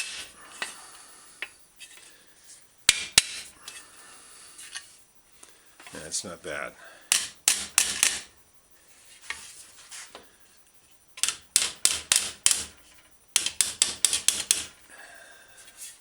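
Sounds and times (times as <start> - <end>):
hammer striking wooden block on metal: 2.9 - 3.5, 7.1 - 8.3, 11.2 - 12.8, 13.4 - 14.8.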